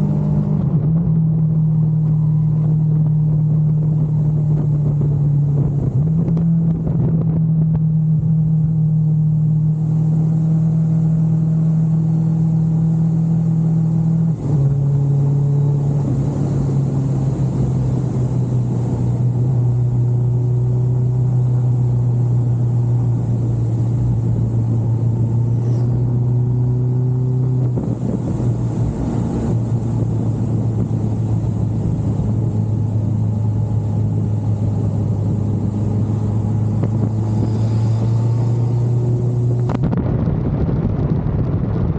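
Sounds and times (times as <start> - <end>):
motorcycle engine droning: 0.0 - 41.9.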